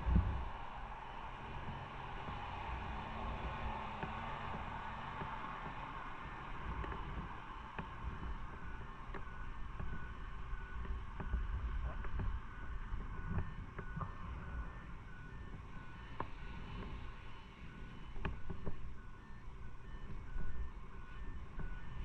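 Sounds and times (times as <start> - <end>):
road and wind noise: 0.0 - 14.3
faint repeated beeping: 4.5 - 22.0.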